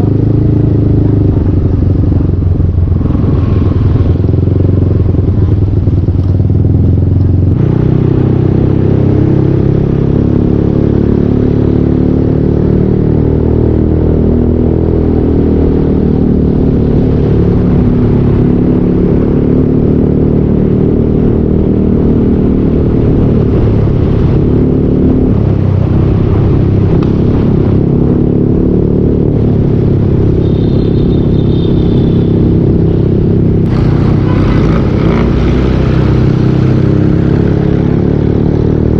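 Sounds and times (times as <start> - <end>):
scooter engine running: 30.4 - 38.9.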